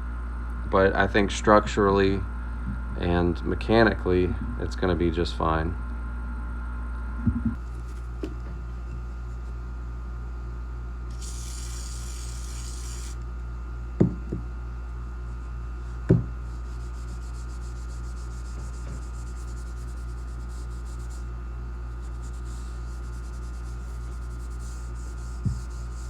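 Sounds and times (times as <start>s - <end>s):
steady low hum: 0.0s - 26.0s
hiss: 11.1s - 13.2s
steel wool rubbing on metal barrel: 16.4s - 21.3s, 21.9s - 26.0s.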